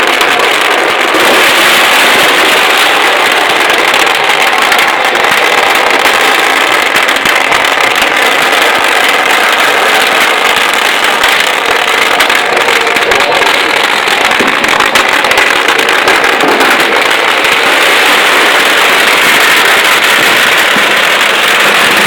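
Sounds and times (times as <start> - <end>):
firecrackers crackling: 0.0 - 22.0.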